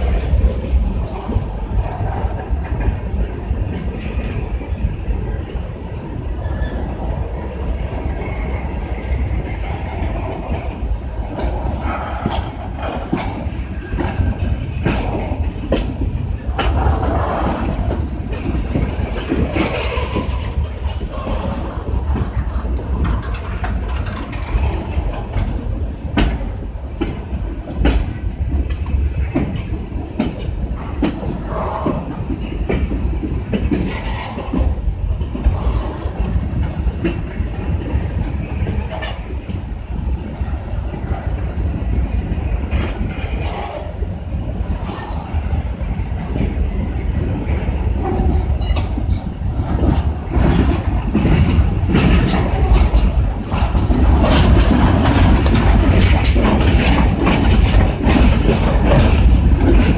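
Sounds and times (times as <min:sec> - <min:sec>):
freight train rumbling: 0:00.0 - 0:59.9
wheels clicking over rail joints: 0:00.0 - 0:59.9.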